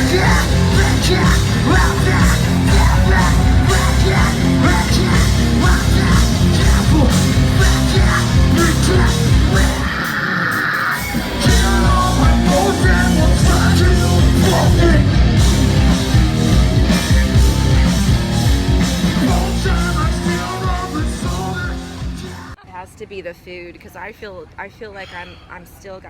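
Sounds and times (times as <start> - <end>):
person singing: 0.0 - 16.2, 19.0 - 22.6
hard rock music: 0.0 - 22.6.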